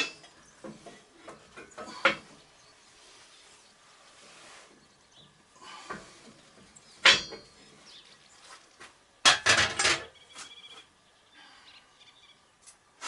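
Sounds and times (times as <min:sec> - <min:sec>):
faint metallic ringing: 0:06.9 - 0:07.8
metal clank: 0:07.0 - 0:07.6.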